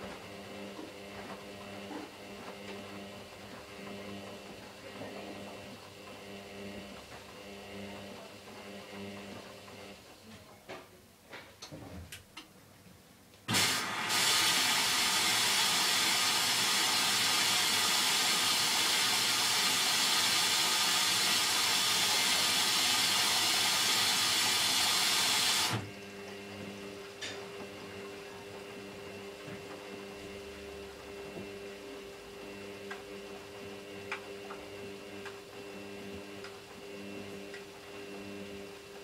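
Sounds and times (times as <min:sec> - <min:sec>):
water rushing into washing machine: 0:13.5 - 0:26.0.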